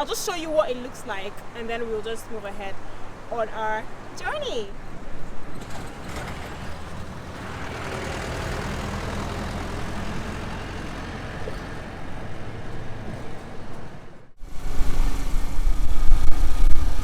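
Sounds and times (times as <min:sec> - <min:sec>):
car engine and tyres rumbling: 0:00.0 - 0:17.0
steady rushing noise: 0:14.3 - 0:17.0.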